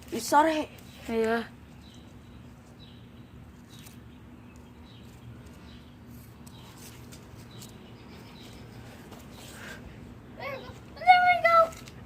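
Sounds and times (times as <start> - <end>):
small bird chirping: 0.7 - 9.5.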